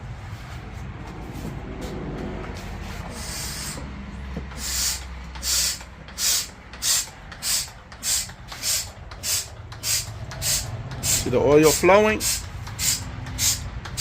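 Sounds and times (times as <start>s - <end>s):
hand pump hissing: 3.0s - 14.0s.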